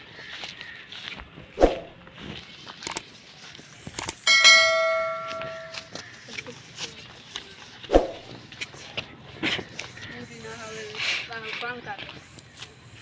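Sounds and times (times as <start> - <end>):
struck metallic ring: 4.3 - 5.9.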